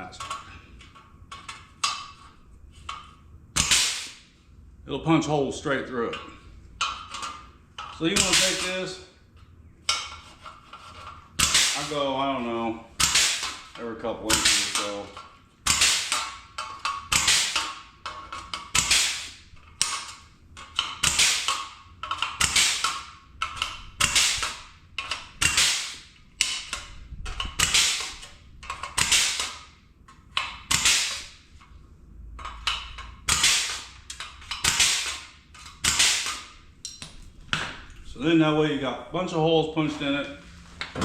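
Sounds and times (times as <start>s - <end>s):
punch tool snapping through sheet steel: 3.6s - 4.2s, 8.1s - 8.8s, 11.4s - 12.0s, 13.0s - 13.7s, 14.3s - 15.0s, 15.6s - 16.4s, 17.1s - 17.8s, 18.5s - 20.1s, 20.7s - 26.9s, 27.5s - 29.7s, 30.4s - 31.3s, 32.7s - 37.1s.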